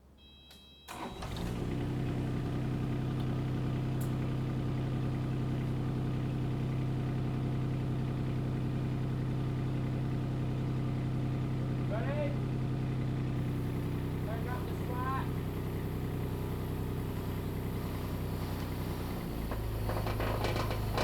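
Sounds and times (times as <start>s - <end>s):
diesel engine starting and running: 0.9s - 21.0s.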